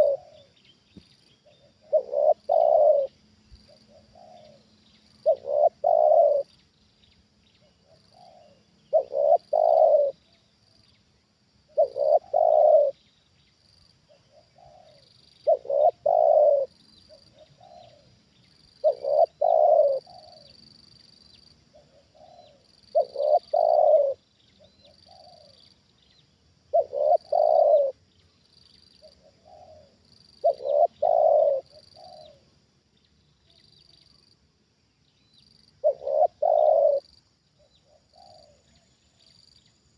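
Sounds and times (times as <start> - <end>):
dove cooing: 0.0 - 0.6, 1.4 - 6.5, 7.6 - 10.2, 11.7 - 13.0, 14.1 - 20.6, 21.7 - 25.7, 26.7 - 28.0, 29.0 - 32.5, 35.8 - 39.0.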